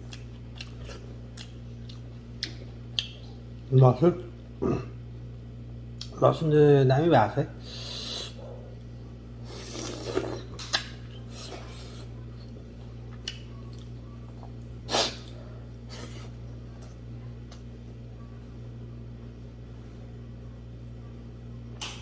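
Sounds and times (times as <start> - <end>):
low electrical hum: 0.0 - 22.0
slurping: 9.4 - 10.5.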